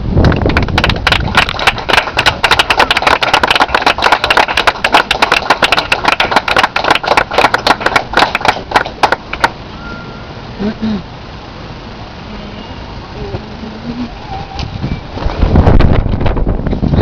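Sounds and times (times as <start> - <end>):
audience clapping: 0.2 - 9.6.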